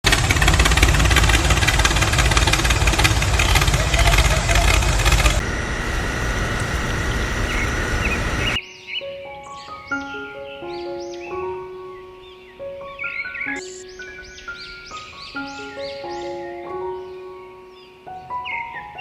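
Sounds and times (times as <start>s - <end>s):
small petrol engine rumbling: 0.0s - 8.6s
thin high whine: 0.2s - 8.6s.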